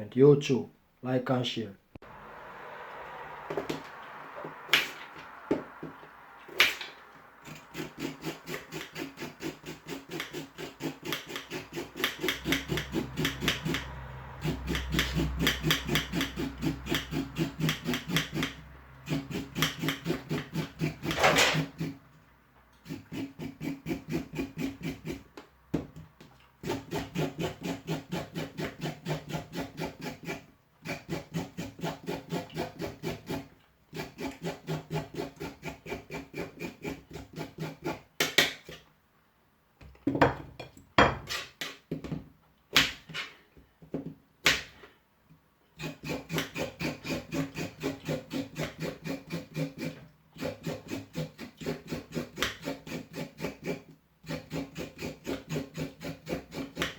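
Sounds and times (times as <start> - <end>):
carrot being scraped: 6.5 - 22.1, 22.7 - 25.4, 26.5 - 38.8, 41.2 - 41.8, 45.8 - 56.9.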